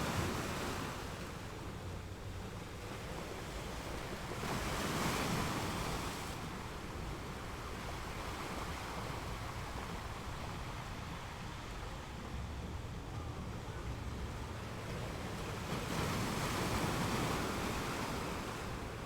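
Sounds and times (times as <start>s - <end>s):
ocean waves breaking: 9.0s - 19.0s.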